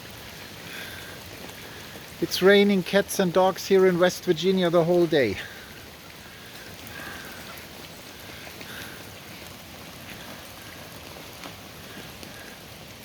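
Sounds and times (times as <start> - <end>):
heavy rain falling: 0.0 - 13.0
raindrops ticking nearby: 0.0 - 13.0.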